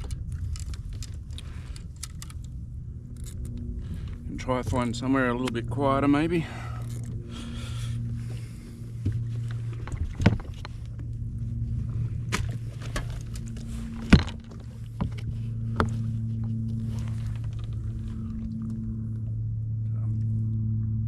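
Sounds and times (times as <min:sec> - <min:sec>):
watercraft engine running: 0:00.0 - 0:21.0
sharp knocks and clunks: 0:09.0 - 0:10.9.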